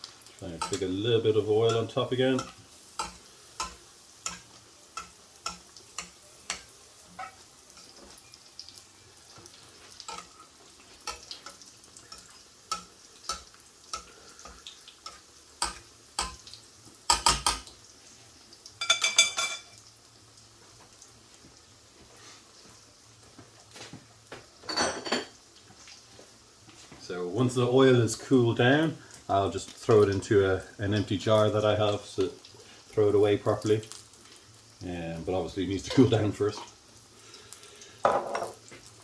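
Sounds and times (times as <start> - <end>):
chicken frying in oil: 0.0 - 39.0
metal utensil clanking on pan: 0.6 - 0.9, 1.6 - 8.4, 10.0 - 10.4, 11.0 - 17.7, 18.8 - 19.8.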